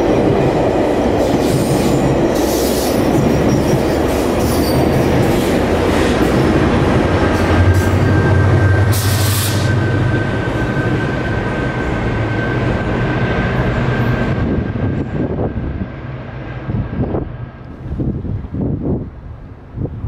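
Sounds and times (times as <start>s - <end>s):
diesel locomotive engine drone: 0.0s - 20.0s
steady high whine: 5.9s - 15.1s.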